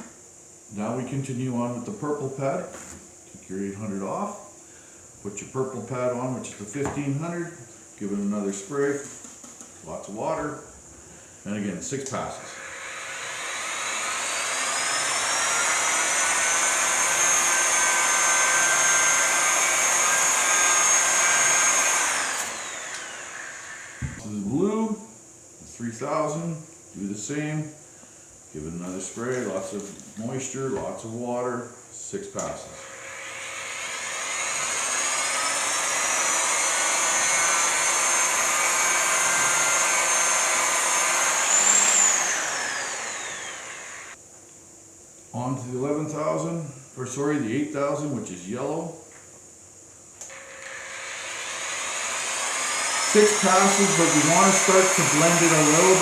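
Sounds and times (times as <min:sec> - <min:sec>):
grinder motor whine: 0:12.5 - 0:24.2, 0:32.8 - 0:44.2, 0:50.3 - 0:56.0.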